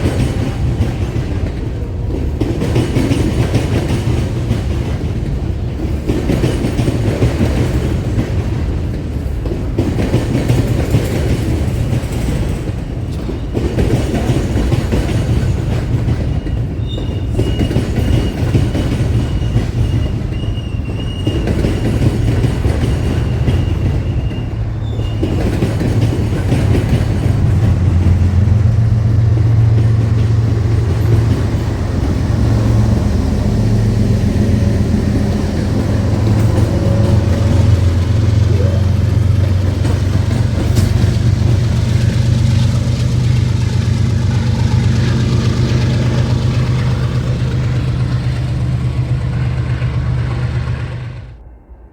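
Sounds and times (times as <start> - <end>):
train clattering over rail joints: 0.0 - 51.4
high wheel squeal: 15.6 - 28.0
deep engine drone: 26.3 - 51.9.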